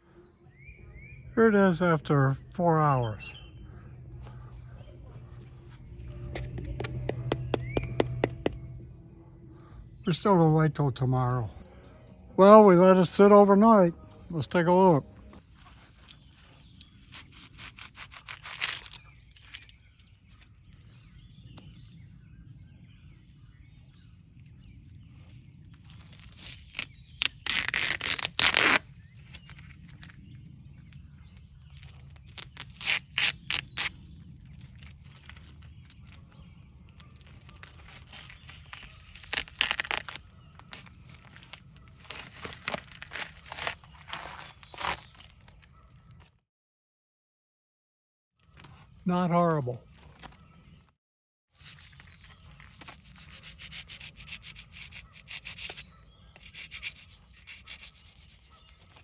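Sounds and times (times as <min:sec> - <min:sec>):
spray foam crunching and tearing: 0:16.8 - 0:19.7, 0:26.0 - 0:28.8, 0:31.9 - 0:36.1, 0:37.2 - 0:45.4.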